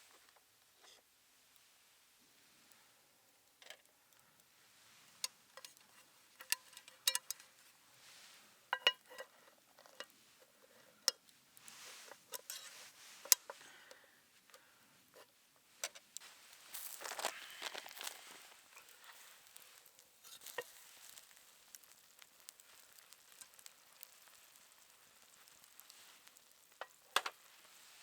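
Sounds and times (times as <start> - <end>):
cookware and utensils clinking: 8.8 - 10.1.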